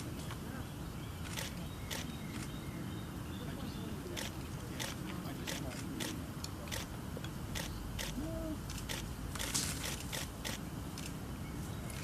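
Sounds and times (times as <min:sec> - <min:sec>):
camera shutters clicking: 0:07.6 - 0:11.2.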